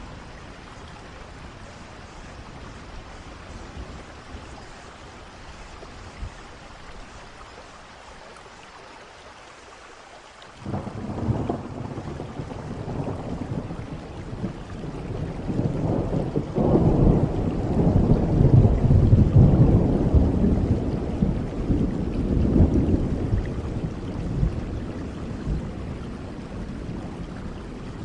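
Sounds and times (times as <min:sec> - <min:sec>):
steady rain: 0:00.0 - 0:28.0
thunder clap and rumble: 0:10.6 - 0:28.0.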